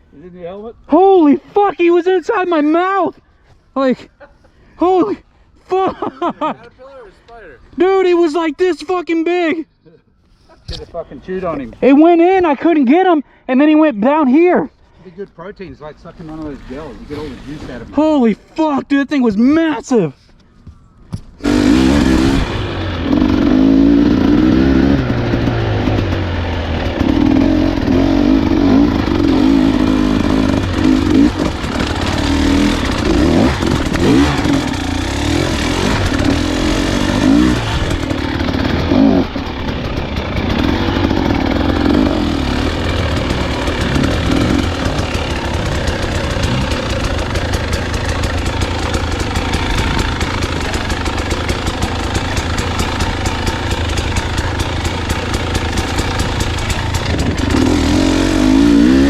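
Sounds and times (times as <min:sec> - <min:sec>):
dirt bike engine revving: 0:21.4 - 0:59.0
rapid clatter: 0:25.1 - 0:58.8.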